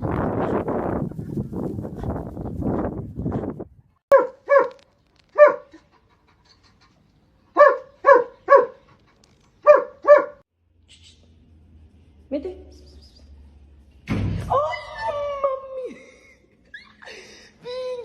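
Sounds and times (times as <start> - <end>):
dog barking: 4.1 - 4.8, 5.4 - 5.8, 7.6 - 8.8, 9.6 - 10.4.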